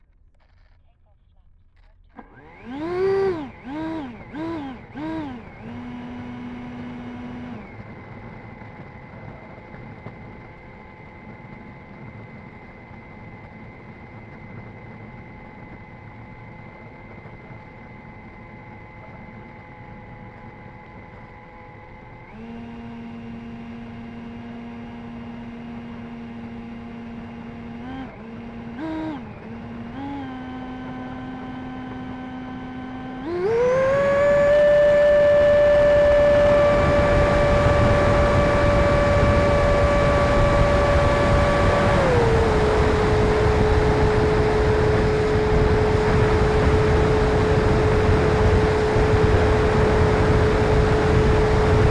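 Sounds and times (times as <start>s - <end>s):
electric ducted fan whine: 17.3s - 51.9s.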